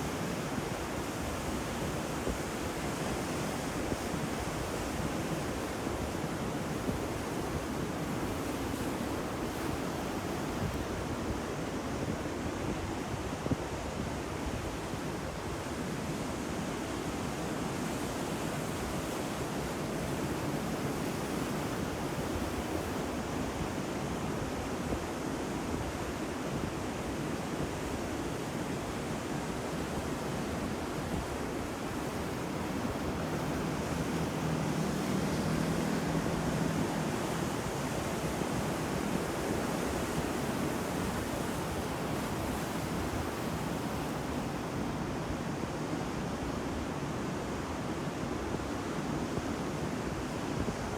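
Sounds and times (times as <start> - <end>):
ocean waves breaking: 29.8 - 45.3.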